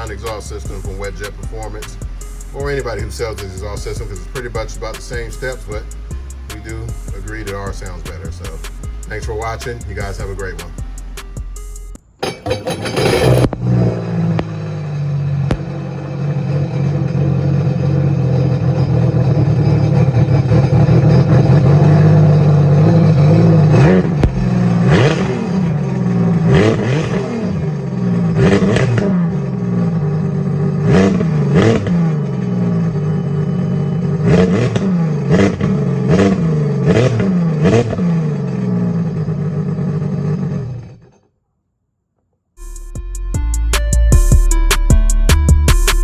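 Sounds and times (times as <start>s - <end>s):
watercraft engine revving: 15.6s - 38.9s.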